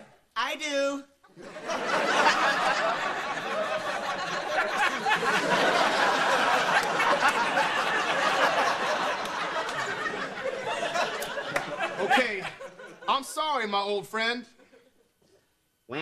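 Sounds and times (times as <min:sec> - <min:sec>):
studio audience laughing: 0:01.3 - 0:13.2.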